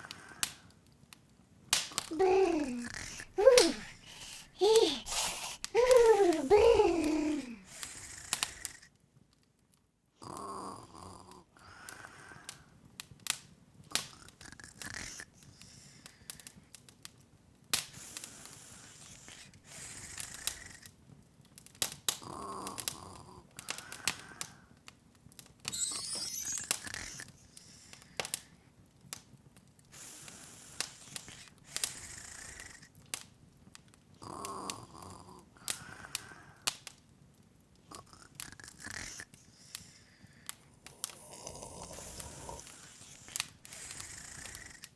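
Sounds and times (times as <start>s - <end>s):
fire crackling and popping: 0.0s - 9.9s, 11.9s - 44.9s
soft breathy sound: 2.0s - 8.9s, 34.2s - 36.7s, 37.9s - 44.9s
rising twinkle: 25.7s - 27.2s.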